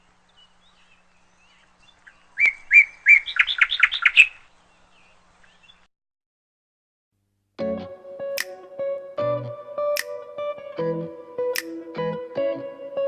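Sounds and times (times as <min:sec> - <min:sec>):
faint bird chirps: 0:00.0 - 0:05.9
songbird singing: 0:00.0 - 0:05.9.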